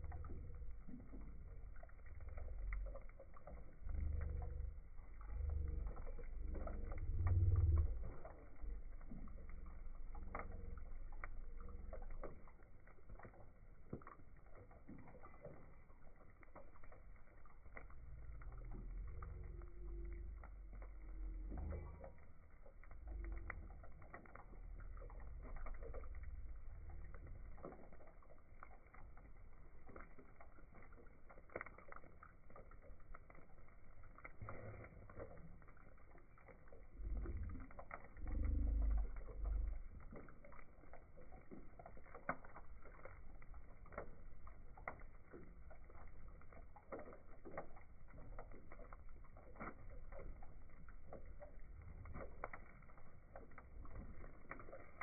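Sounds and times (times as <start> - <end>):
low rumble: 0.0 - 12.4, 17.4 - 27.7, 34.2 - 41.4
wood fire crackling: 0.0 - 55.0.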